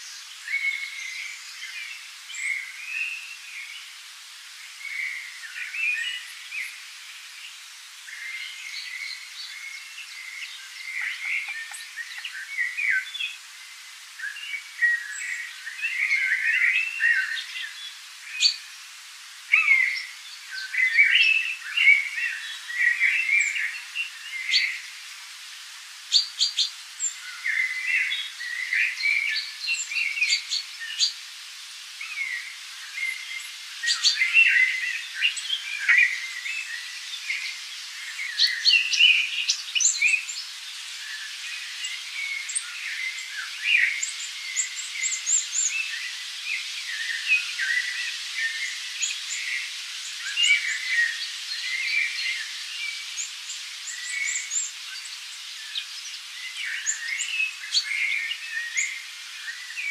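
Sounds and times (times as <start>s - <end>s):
birds chirping and calling: 8.3s - 13.4s, 33.0s - 40.5s, 41.4s - 59.9s.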